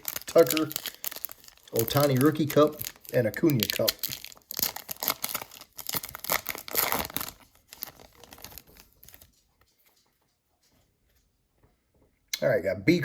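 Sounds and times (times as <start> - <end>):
wrapper tearing and crinkling: 0.0 - 9.4.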